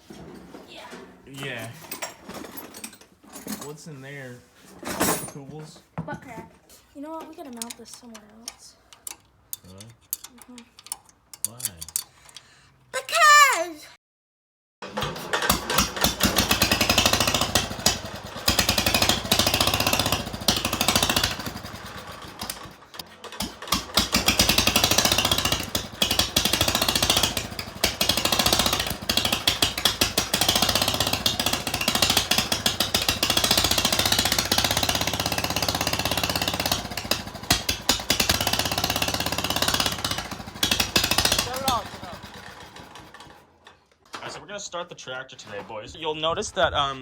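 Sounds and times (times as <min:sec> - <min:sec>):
small tractor engine running: 0:14.8 - 0:43.8.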